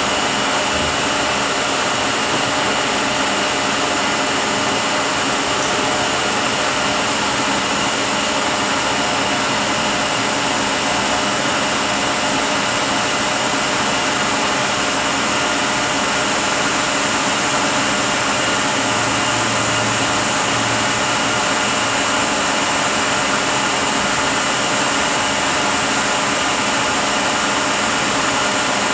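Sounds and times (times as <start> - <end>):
truck transmission whirring: 0.0 - 9.6.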